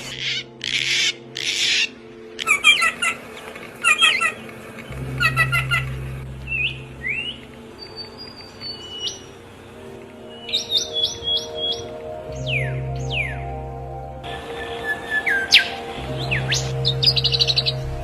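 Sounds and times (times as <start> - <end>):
harsh bird squawks: 0.0 - 3.2, 3.8 - 7.4.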